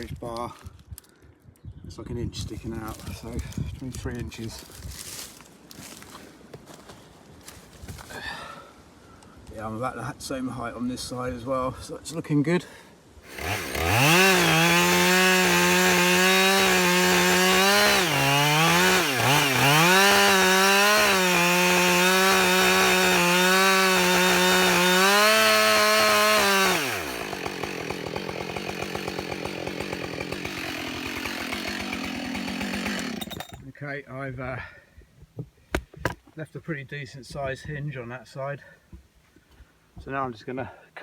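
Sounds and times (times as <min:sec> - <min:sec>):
chainsaw cutting wood: 0:13.2 - 0:33.6.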